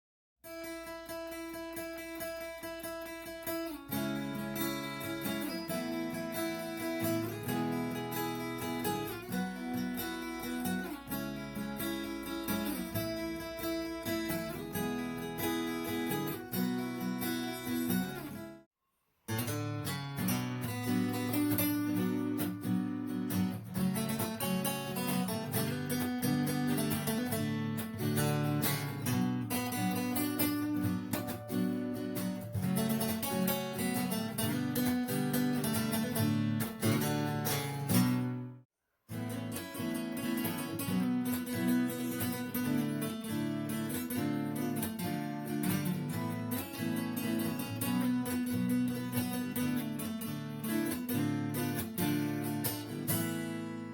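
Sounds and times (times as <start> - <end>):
solo acoustic guitar melody: 0.4 - 18.7, 19.3 - 53.9.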